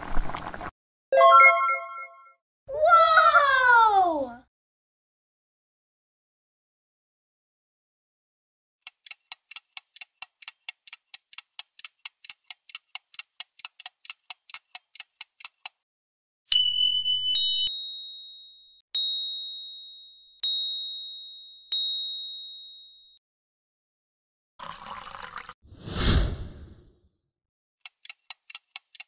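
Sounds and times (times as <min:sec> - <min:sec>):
timer ticking quickly: 0:08.8 - 0:15.8, 0:27.8 - 0:29.0
ringing dings: 0:16.5 - 0:23.2.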